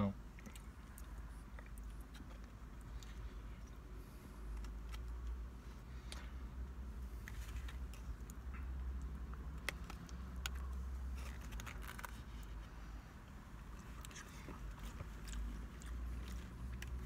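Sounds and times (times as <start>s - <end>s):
person chewing and biting food: 0.3s - 17.0s
eating clicks and scrapes: 7.1s - 12.8s, 13.7s - 17.0s.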